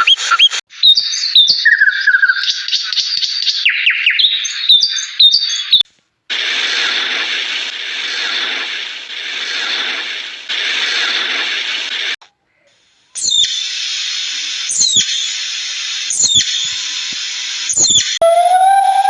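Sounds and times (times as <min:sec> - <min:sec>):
bird chirping: 0:00.8 - 0:05.8, 0:12.6 - 0:13.8, 0:14.7 - 0:15.4, 0:16.1 - 0:16.9, 0:17.7 - 0:18.2
loud steady hissing: 0:06.3 - 0:18.2.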